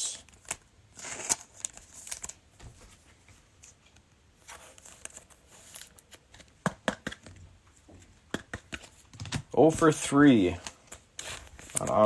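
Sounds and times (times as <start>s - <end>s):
trading cards rustling: 0.1s - 2.9s, 4.4s - 7.4s, 8.4s - 12.0s.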